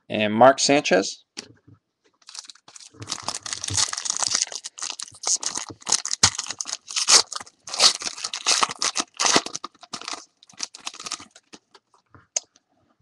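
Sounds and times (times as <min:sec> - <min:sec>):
foil wrapper tearing and crinkling: 0:02.2 - 0:11.6.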